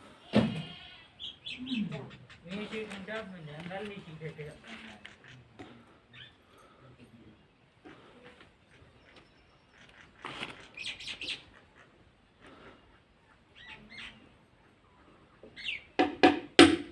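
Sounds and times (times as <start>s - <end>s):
small birds chirping: 0.7s - 16.0s
sharp knock: 16.0s - 16.9s.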